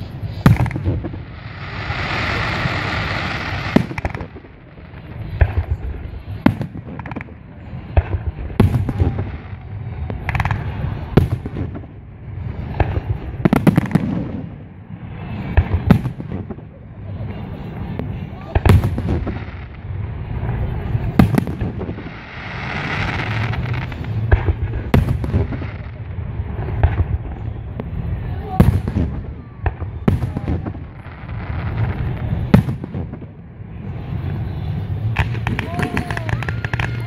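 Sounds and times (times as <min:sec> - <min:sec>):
hissing rush: 0:00.0 - 0:06.8, 0:17.0 - 0:26.8
low rolling rumble: 0:00.0 - 0:37.0
firework shells bursting: 0:00.2 - 0:05.7.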